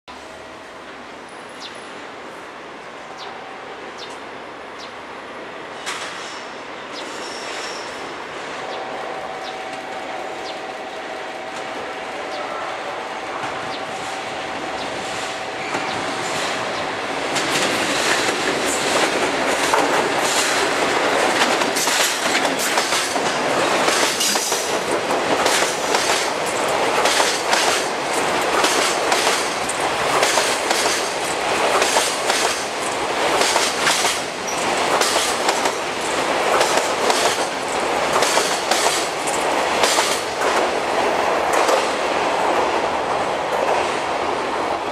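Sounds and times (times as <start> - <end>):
freight train rumbling past: 0.1 - 44.9
wheels clacking over rail joints: 15.1 - 42.0.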